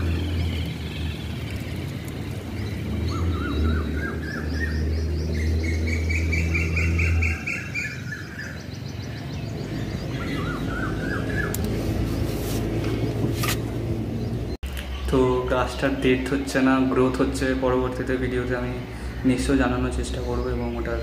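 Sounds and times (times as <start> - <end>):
birds chirping in trills: 0.0 - 21.0.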